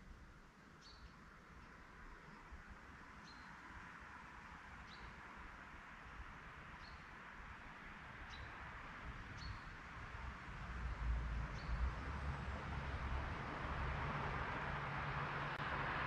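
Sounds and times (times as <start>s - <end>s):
songbird high chirp: 0.7s - 2.5s, 3.2s - 3.6s, 4.8s - 5.2s, 6.8s - 7.1s, 8.2s - 8.6s, 9.3s - 9.8s, 11.5s - 11.8s
low vehicle rumble: 10.2s - 16.0s.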